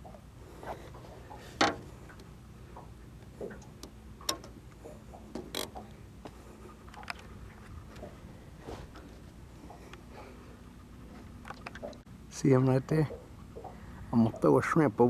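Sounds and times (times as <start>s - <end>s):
light clicks and taps: 0.9s - 8.2s, 11.4s - 12.0s.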